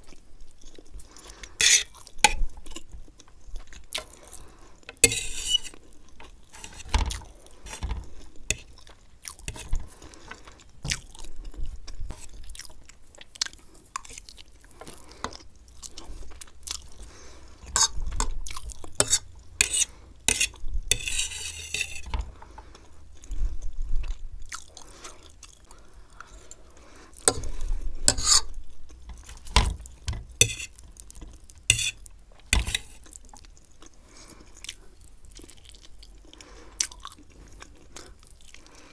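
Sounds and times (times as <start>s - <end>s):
close chewing: 0.0s - 5.1s, 5.7s - 20.7s, 22.4s - 27.6s, 30.7s - 38.9s
fork clicking and scraping plate: 1.6s - 2.4s, 4.9s - 5.8s, 8.5s - 8.8s, 17.8s - 18.3s, 19.0s - 22.2s, 28.1s - 29.2s, 30.4s - 30.8s, 31.7s - 32.0s, 32.6s - 33.0s.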